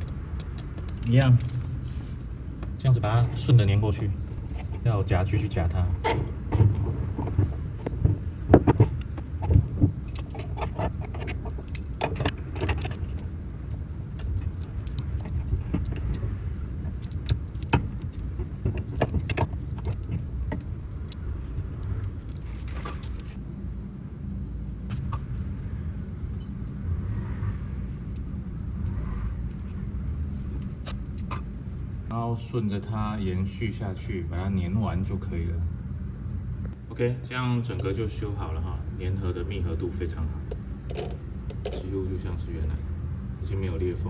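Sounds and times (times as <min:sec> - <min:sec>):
low rumble: 0:00.0 - 0:32.1
metal clamps and tools clinking: 0:10.1 - 0:13.4, 0:16.8 - 0:21.1, 0:40.9 - 0:41.9.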